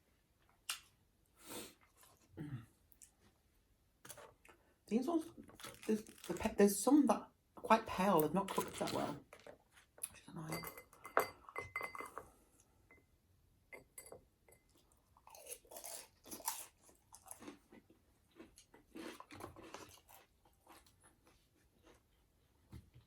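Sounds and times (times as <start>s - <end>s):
person chewing food: 14.6s - 22.4s.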